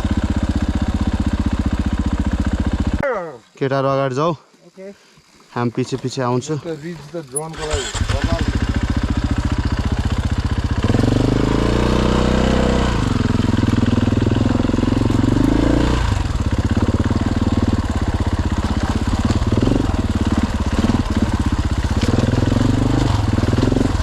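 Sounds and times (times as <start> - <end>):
dirt bike engine revving: 6.8 - 24.0.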